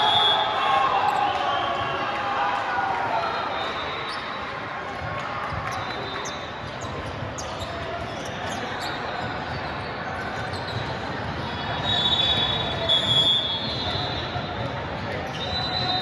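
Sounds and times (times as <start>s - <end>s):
shoes squeaking on court: 5.5s - 11.5s.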